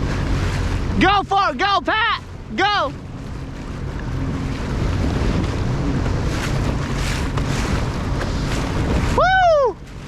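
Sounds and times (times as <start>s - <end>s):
jet ski engine hum: 0.0s - 10.0s
water rushing: 0.0s - 10.0s
wind buffeting microphone: 2.1s - 10.0s.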